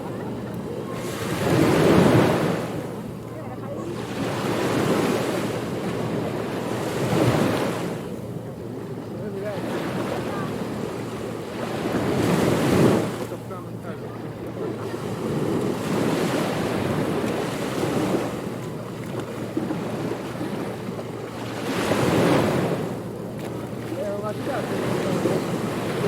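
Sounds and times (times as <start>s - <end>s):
wave breaking: 0.0s - 8.2s
ocean waves washing: 0.0s - 26.0s.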